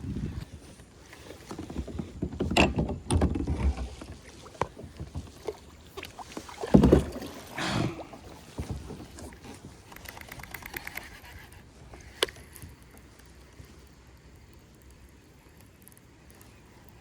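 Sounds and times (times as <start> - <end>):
wind buffeting microphone: 0.0 - 0.7
water sloshing against kayak hull: 0.4 - 13.8
gear knocking against kayak: 1.4 - 7.4.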